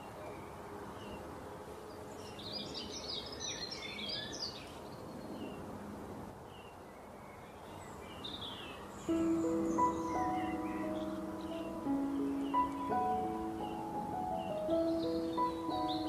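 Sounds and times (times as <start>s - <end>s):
background hiss: 0.0s - 16.0s
birds chirping: 6.5s - 16.0s.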